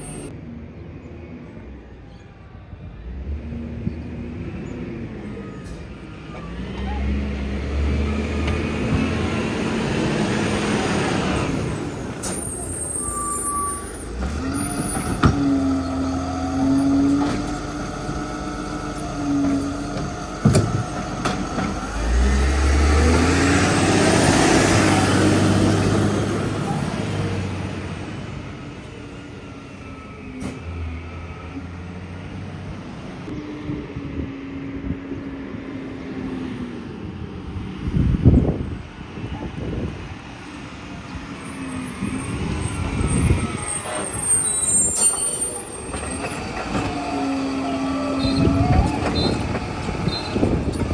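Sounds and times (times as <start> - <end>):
garbage truck diesel engine running: 5.8 - 31.2, 40.8 - 50.9
steady machine whine: 13.0 - 23.1.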